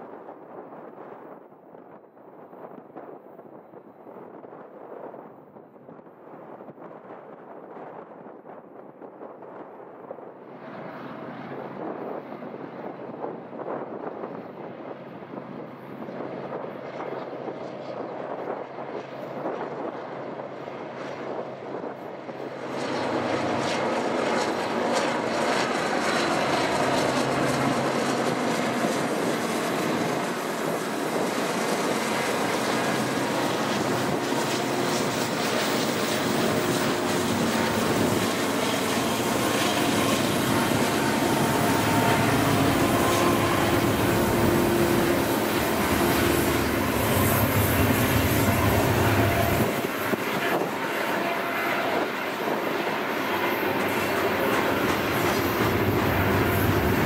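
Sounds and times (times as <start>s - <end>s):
freight train wheels rumbling: 22.3s - 57.0s.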